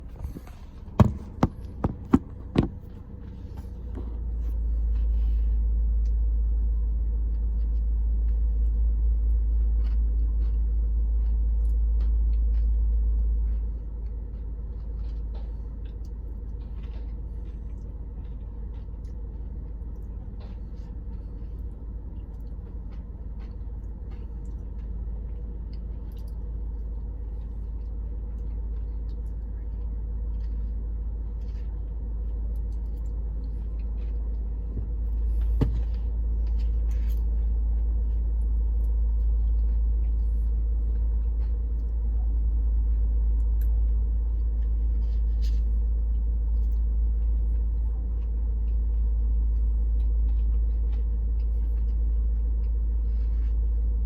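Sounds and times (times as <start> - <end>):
car cabin rumble: 0.0 - 6.4, 31.5 - 48.2
sharp knocks: 0.2 - 2.9.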